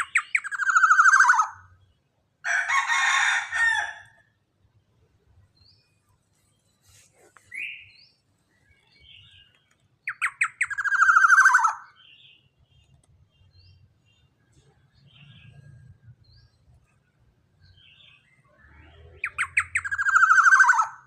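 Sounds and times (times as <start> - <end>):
oriole calling: 0.0 - 1.7, 10.1 - 12.0, 19.2 - 21.0.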